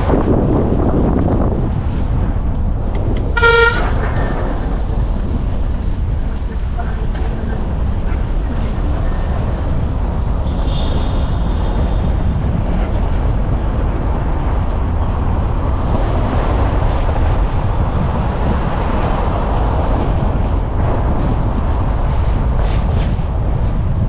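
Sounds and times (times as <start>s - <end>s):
motor vehicle engine and road noise: 0.0s - 24.0s.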